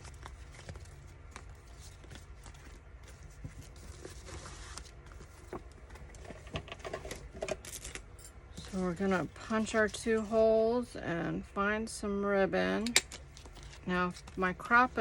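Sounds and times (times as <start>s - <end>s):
paper rustling: 0.0s - 6.5s, 13.3s - 15.0s
steady low hum: 0.0s - 15.0s.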